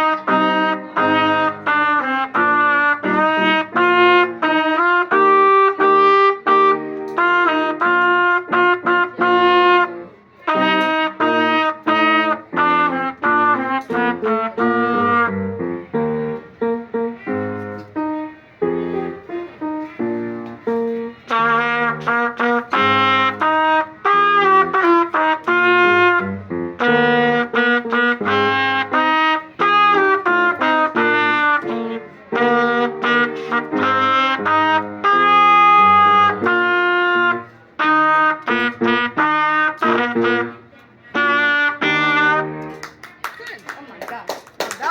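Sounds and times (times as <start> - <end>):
trumpets playing detached notes: 0.0 - 42.8
wind band playing: 0.0 - 42.9.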